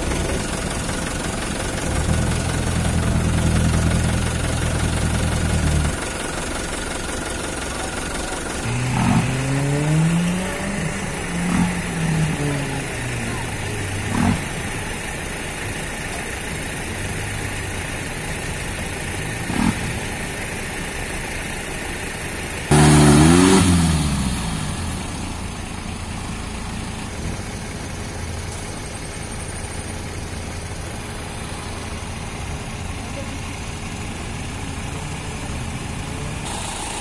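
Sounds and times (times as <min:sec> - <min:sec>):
off-road vehicle engine revving: 0:00.0 - 0:06.5, 0:07.7 - 0:28.6.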